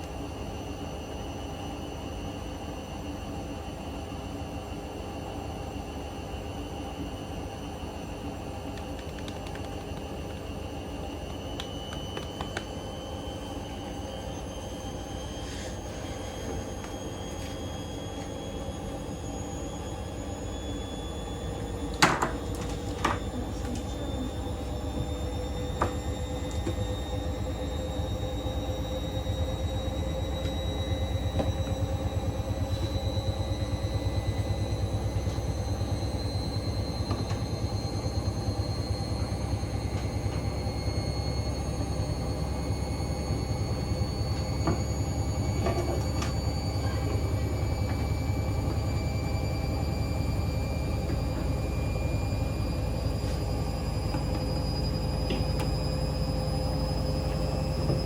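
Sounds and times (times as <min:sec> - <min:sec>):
motor whine: 0:00.0 - 0:58.0
washing machine drum spinning: 0:19.3 - 0:58.0.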